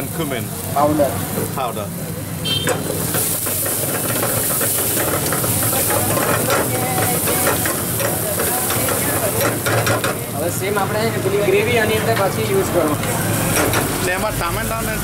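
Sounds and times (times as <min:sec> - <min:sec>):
masala sizzling in a wok: 0:00.0 - 0:15.0
metal spatula scraping pan: 0:02.5 - 0:10.2.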